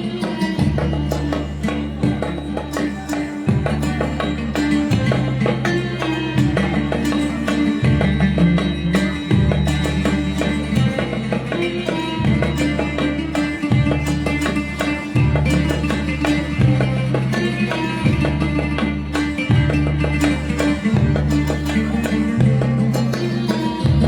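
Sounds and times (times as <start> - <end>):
drum strokes: 0.0 - 24.0
plucked strings: 0.0 - 24.0
deep sustained bass line: 15.1 - 24.0.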